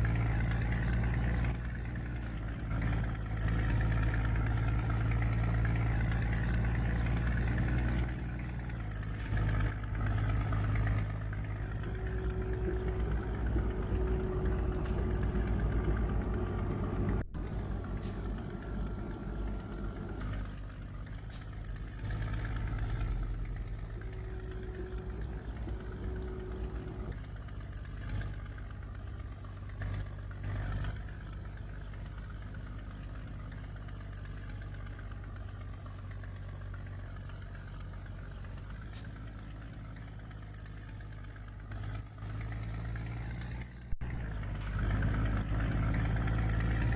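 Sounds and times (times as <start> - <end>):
truck diesel engine running: 0.0 - 46.9.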